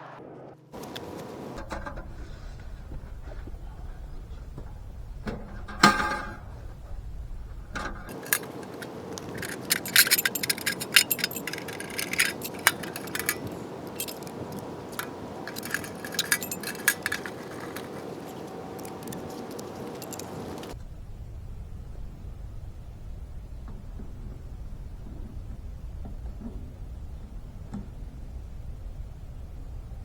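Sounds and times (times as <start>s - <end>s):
steady background hiss: 0.1s - 30.0s
small metal objects clinking: 8.0s - 20.8s.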